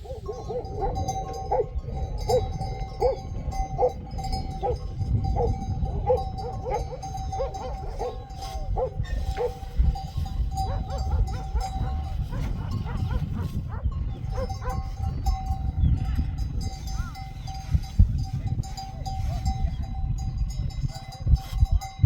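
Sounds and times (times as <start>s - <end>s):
animal calling: 0.0s - 9.6s.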